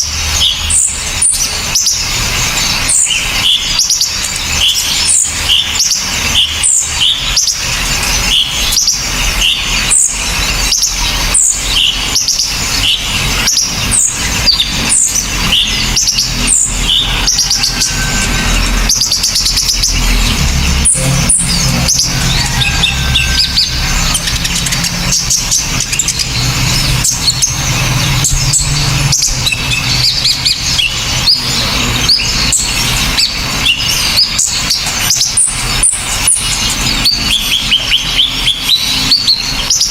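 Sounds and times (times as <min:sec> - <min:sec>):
songbirds chirping: 0:00.0 - 0:39.9
low rumble: 0:17.8 - 0:33.2.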